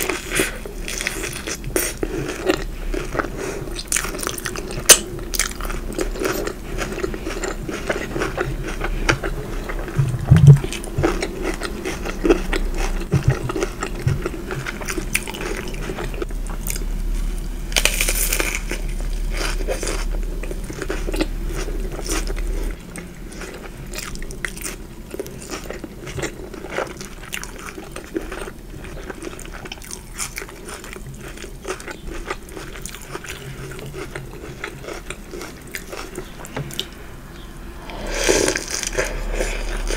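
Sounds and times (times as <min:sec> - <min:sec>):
chewing crunchy food: 0:00.0 - 0:39.9
dull thumps: 0:10.0 - 0:10.7.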